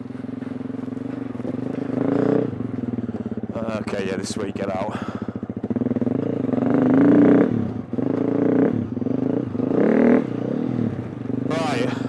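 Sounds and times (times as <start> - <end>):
dirt bike engine revving: 3.6 - 12.0.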